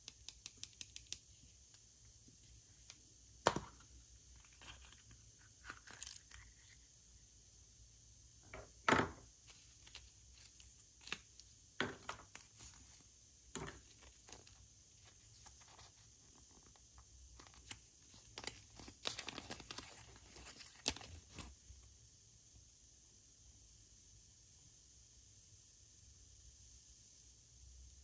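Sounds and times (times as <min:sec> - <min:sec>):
wrapping crinkling and tearing: 0:04.4 - 0:06.8, 0:17.4 - 0:21.5.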